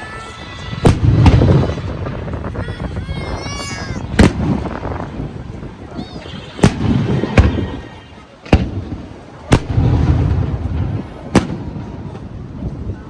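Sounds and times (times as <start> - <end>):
fireworks bangs: 0.0 - 13.0
low rumbling echo: 0.0 - 13.0.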